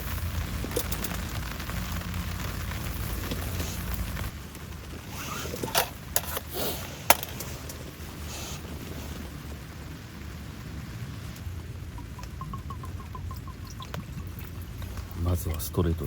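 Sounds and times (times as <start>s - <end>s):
objects knocking and clacking: 5.4s - 6.5s, 7.1s - 7.8s.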